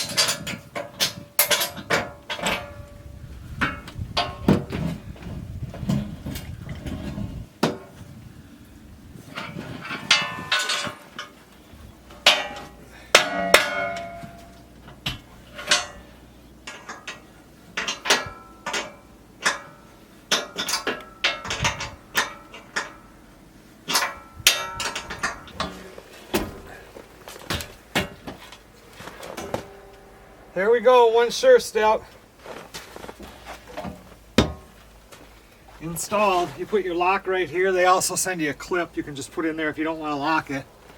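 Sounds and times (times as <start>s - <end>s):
metal hardware clanking: 0.0s - 3.0s, 9.3s - 11.4s, 12.0s - 23.2s, 23.8s - 30.6s.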